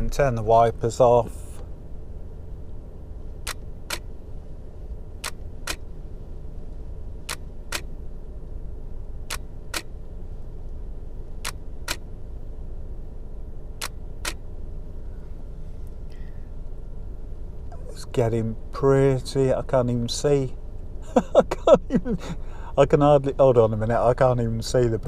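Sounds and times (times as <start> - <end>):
car engine idling: 0.0 - 25.0
camera shutter clicks: 5.2 - 5.8.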